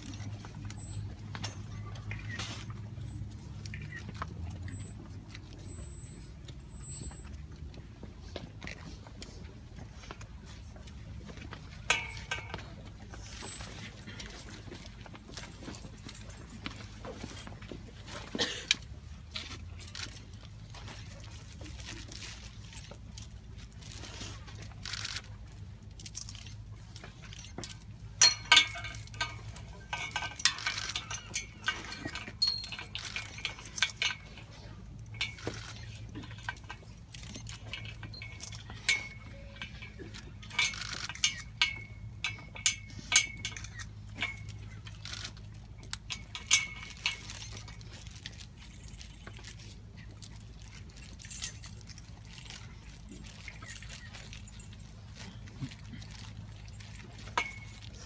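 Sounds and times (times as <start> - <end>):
metallic clinks and jingles: 0.0 - 58.0.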